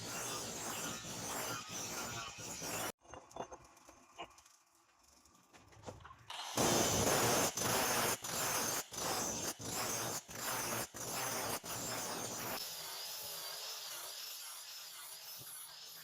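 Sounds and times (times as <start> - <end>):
mechanism rasping strokes: 0.0 - 2.9.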